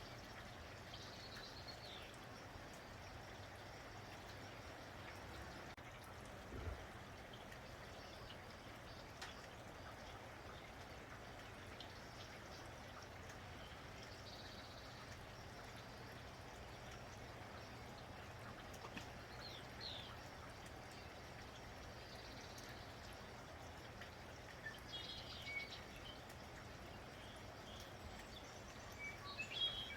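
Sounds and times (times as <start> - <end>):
light rain falling: 0.0 - 29.9
sharp drips: 0.0 - 29.9.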